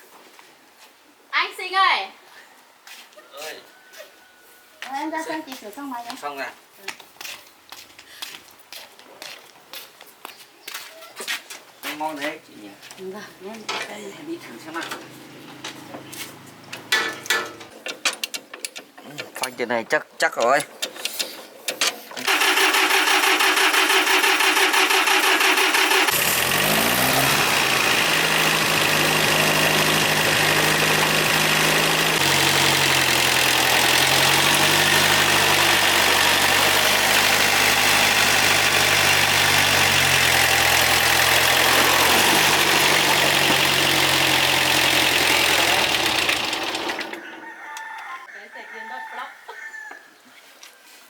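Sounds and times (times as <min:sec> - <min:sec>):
farm machine engine running: 0:14.8 - 0:17.8, 0:22.2 - 0:47.4.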